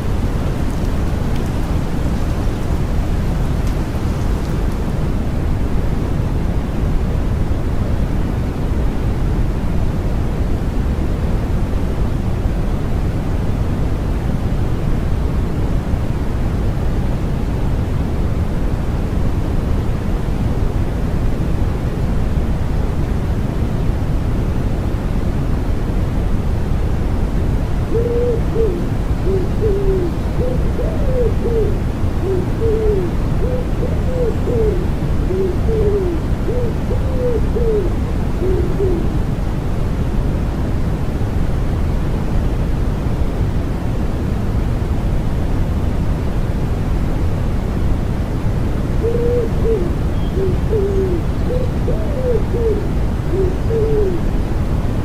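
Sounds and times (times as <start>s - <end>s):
wood pigeon cooing: 0.0s - 5.0s, 27.8s - 39.2s, 48.9s - 54.3s
white noise hiss: 0.0s - 55.0s.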